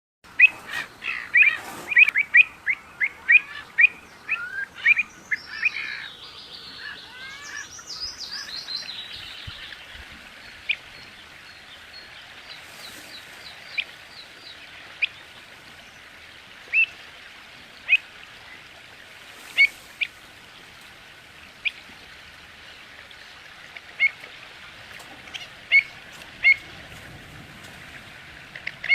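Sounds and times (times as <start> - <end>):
small birds chirping: 0.3 - 15.3.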